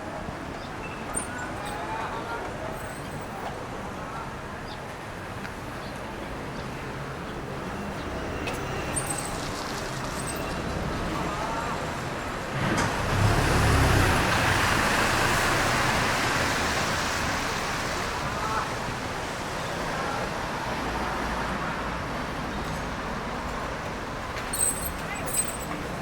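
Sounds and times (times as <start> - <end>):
traffic noise: 0.0 - 26.0
vehicle passing on wet street: 7.5 - 24.6.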